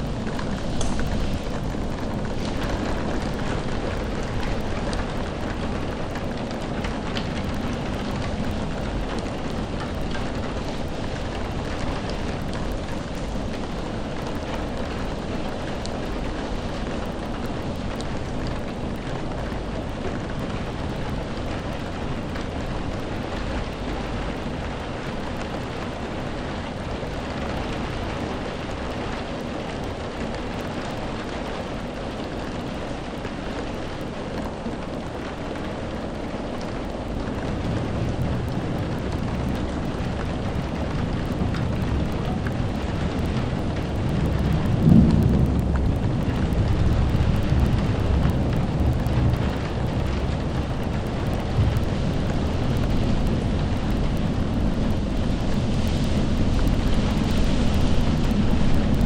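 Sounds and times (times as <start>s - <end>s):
raindrop ticks: 0.0s - 59.0s
steady rain hiss: 0.0s - 59.0s
low rumble: 37.3s - 59.0s.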